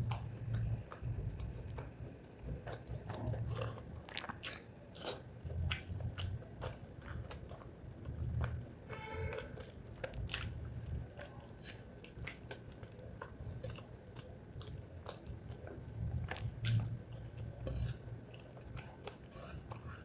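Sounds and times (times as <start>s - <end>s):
close chewing with wet clicks: 0.0s - 20.0s.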